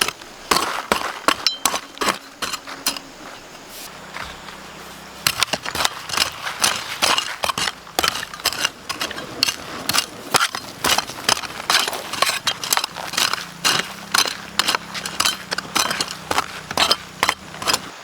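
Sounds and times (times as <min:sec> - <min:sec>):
sharp knocks and scrapes: 0:00.0 - 0:18.0.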